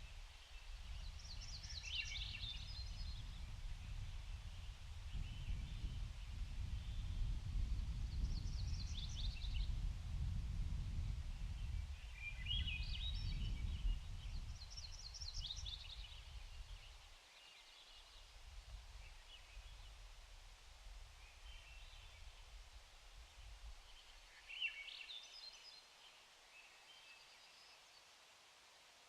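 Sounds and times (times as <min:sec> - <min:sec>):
small birds twittering: 0:00.4 - 0:07.2, 0:08.1 - 0:09.8, 0:11.4 - 0:18.4.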